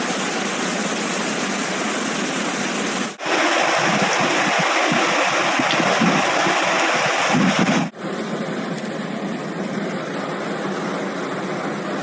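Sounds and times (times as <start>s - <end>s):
floodwater rushing: 0.0s - 12.0s
wind buffeting microphone: 3.2s - 7.9s.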